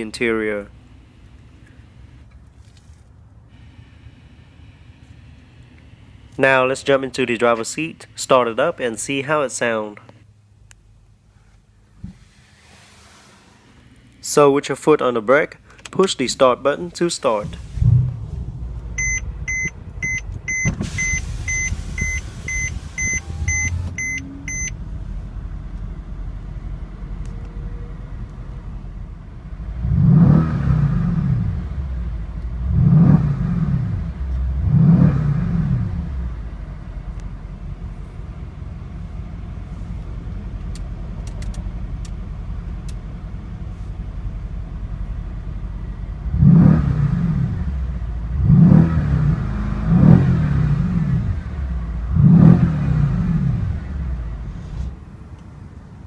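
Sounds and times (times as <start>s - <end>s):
car engine idling and revving: 0.0s - 8.3s, 17.1s - 56.0s
car warning chime beeping: 19.0s - 24.8s.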